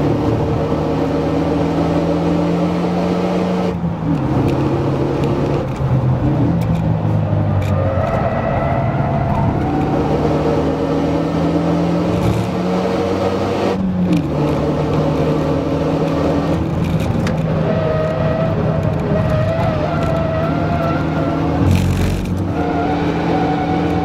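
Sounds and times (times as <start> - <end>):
car engine at full throttle: 0.0 - 24.0.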